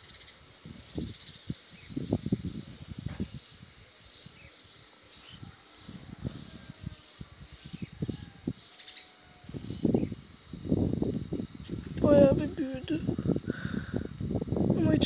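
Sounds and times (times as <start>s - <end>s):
bird chirping: 0.0s - 10.2s
high insect drone: 0.0s - 15.0s.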